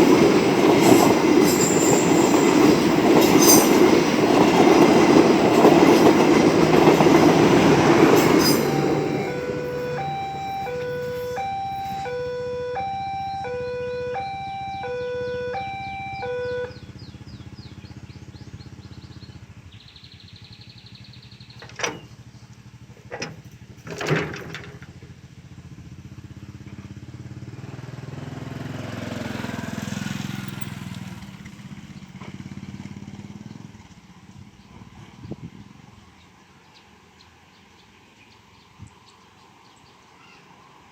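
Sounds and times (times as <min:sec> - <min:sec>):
road traffic: 0:00.0 - 0:23.9, 0:24.6 - 0:40.9
level crossing two-tone alarm: 0:06.8 - 0:16.8
vehicle passing: 0:27.3 - 0:33.1.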